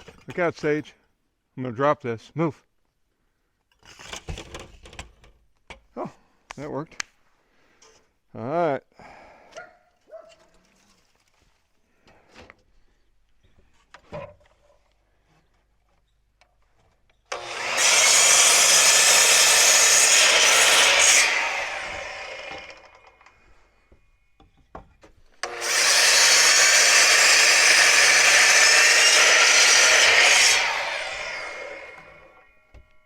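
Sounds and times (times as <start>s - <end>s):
power saw cutting wood: 17.3s - 23.3s, 25.4s - 32.8s.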